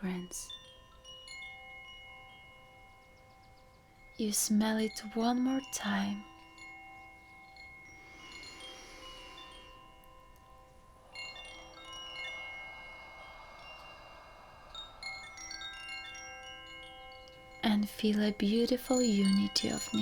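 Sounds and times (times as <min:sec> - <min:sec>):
soft hiss: 0:00.0 - 0:20.0
wind chimes ringing: 0:00.0 - 0:20.0.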